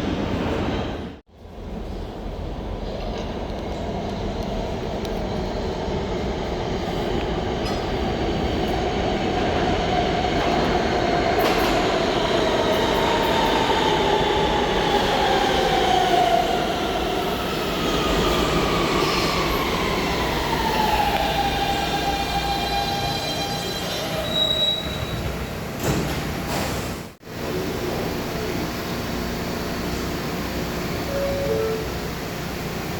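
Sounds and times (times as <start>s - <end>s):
subway train rumbling and whining: 0.0s - 32.9s.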